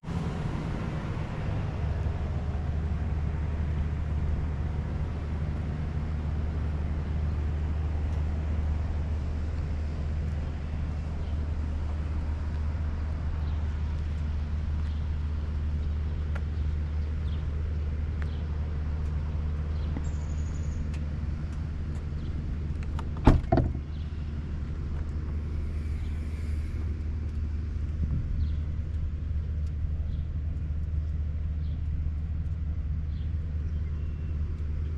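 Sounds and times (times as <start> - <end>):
car engine idling: 0.0 - 34.9
sharp knocks: 23.2 - 23.8.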